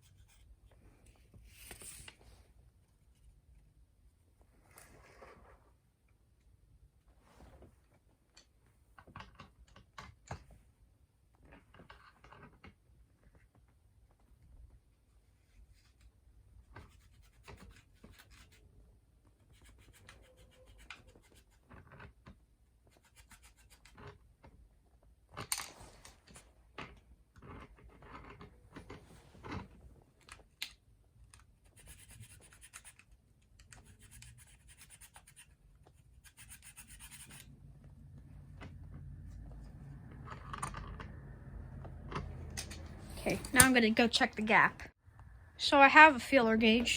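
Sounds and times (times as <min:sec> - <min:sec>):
hands and small tools scratching: 0:15.6 - 0:24.2, 0:31.2 - 0:37.8.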